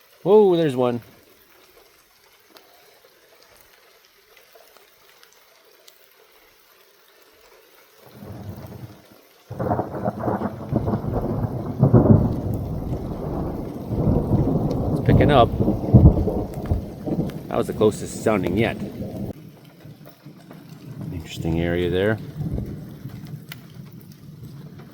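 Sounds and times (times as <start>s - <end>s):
light rain: 0.0s - 24.9s
thunder rumbling: 8.0s - 24.9s.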